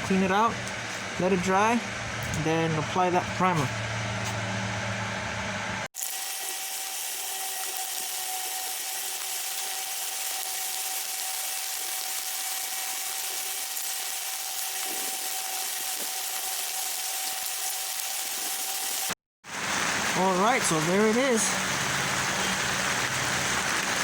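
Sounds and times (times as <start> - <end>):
spray paint hissing: 6.0 - 19.2.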